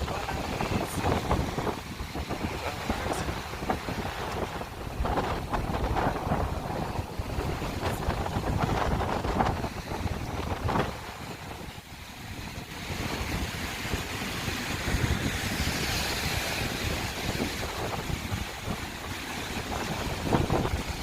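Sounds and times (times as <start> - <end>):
rough sea surf washing onto beach: 0.0 - 21.0
wind rumbling on microphone: 0.0 - 21.0.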